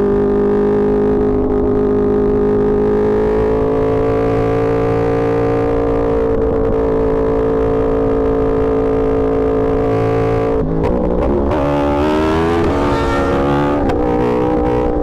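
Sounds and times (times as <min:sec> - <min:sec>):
motorcycle engine revving: 0:06.5 - 0:15.0.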